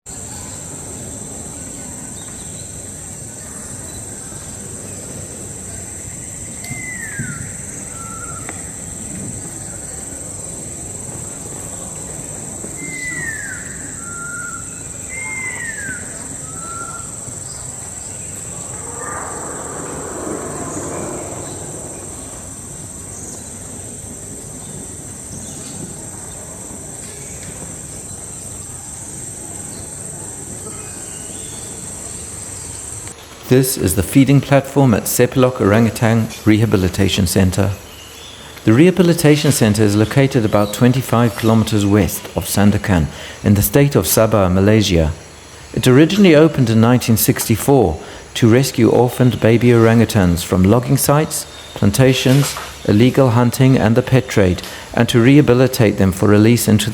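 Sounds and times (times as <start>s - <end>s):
high-pitched insect drone: 18.3s - 23.4s
bird whistling call: 18.4s - 22.9s
rushing sound: 18.4s - 23.3s.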